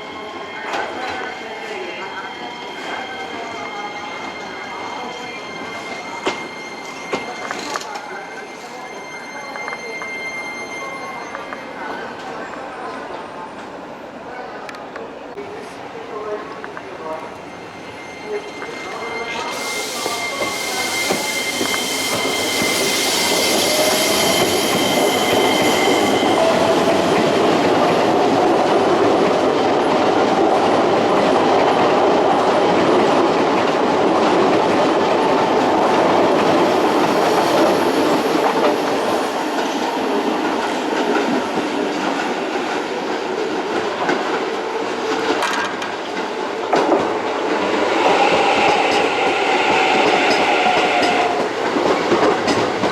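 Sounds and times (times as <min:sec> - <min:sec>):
thin high squeal: 0:00.1 - 0:12.1, 0:17.4 - 0:26.9.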